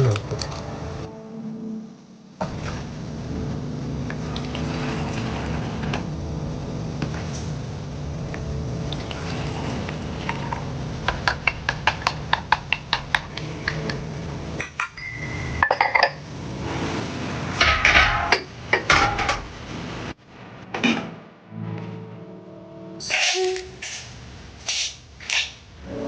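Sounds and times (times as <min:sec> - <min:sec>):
steady low hum: 0:00.0 - 0:23.0
dishes and utensils clattering: 0:14.6 - 0:16.2, 0:17.6 - 0:19.4.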